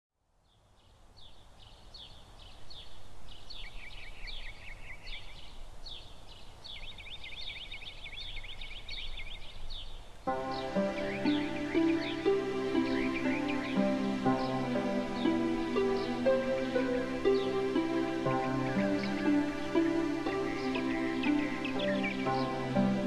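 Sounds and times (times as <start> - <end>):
faint outdoor background noise: 0.1 - 23.0
birds chirping: 0.5 - 23.0
music: 10.3 - 23.0.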